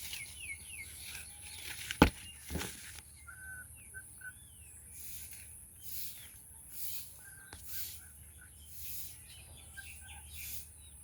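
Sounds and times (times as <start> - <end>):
birds chirping and whistling: 0.0 - 11.0
steady high-pitched hiss: 4.7 - 11.0.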